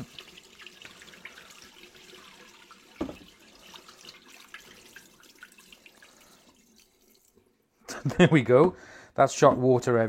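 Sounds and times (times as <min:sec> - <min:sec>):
water splashing into sink: 0:00.0 - 0:07.5
knock: 0:03.0 - 0:03.2.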